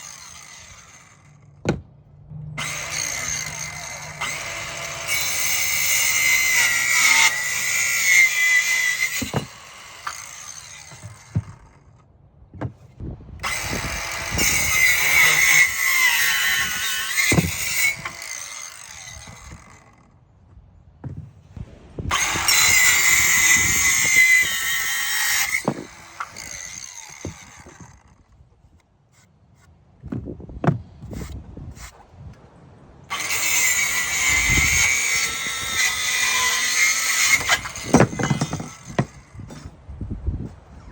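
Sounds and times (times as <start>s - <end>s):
circular saw cutting wood: 0.0s - 1.8s, 2.4s - 12.0s, 13.4s - 20.1s, 22.1s - 28.3s, 33.1s - 39.7s
knocks of wood being handled: 1.6s - 2.0s, 9.0s - 10.2s, 10.8s - 13.0s, 20.4s - 21.4s, 25.2s - 31.9s, 37.2s - 39.7s.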